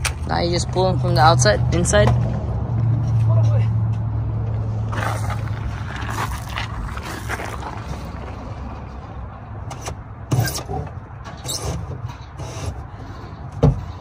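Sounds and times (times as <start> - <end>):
cables scraping and rubbing: 4.9 - 8.8.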